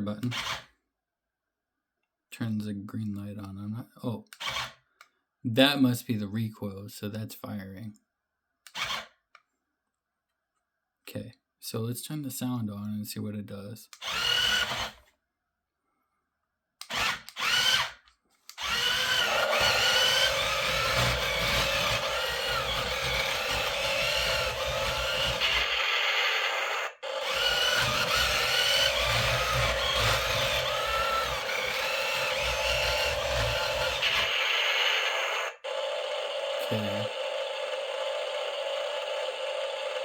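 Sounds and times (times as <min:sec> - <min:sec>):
toy tank sound effects: 0:14.0 - 0:14.8, 0:18.6 - 0:40.0
electric motors whirring: 0:14.0 - 0:15.0, 0:16.9 - 0:40.0.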